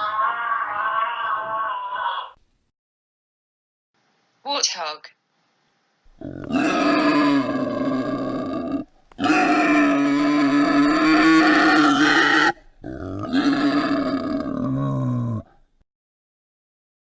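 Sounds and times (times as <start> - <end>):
warthog calling: 6.1 - 15.5.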